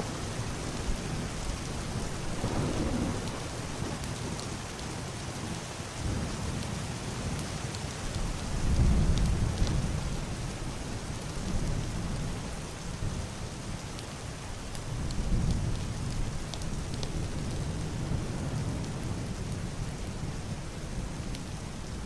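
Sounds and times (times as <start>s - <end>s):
heavy rain on roof and window: 0.0s - 22.0s
distant thunder rolling: 1.9s - 4.1s.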